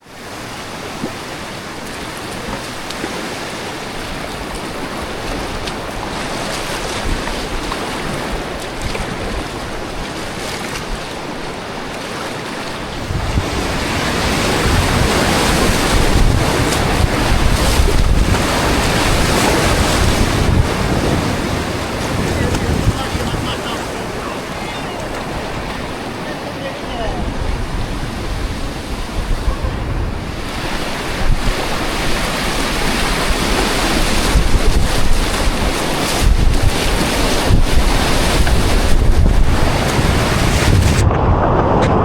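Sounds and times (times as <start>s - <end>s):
wind buffeting microphone: 12.8s - 26.2s, 26.9s - 42.0s
river rapids rushing: 13.1s - 27.3s.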